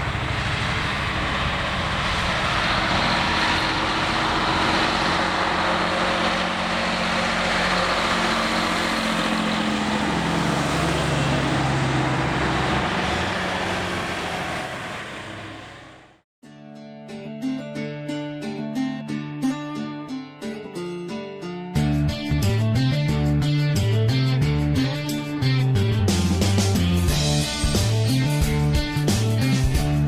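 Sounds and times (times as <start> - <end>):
old truck engine running: 0.0 - 16.2.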